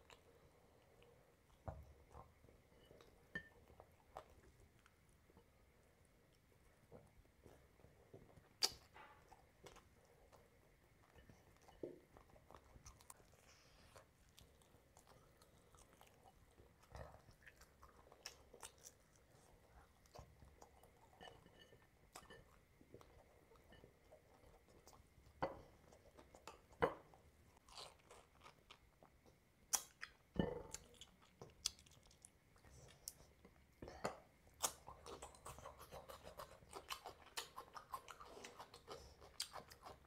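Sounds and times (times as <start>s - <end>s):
person chewing and crunching food: 0.0s - 40.0s.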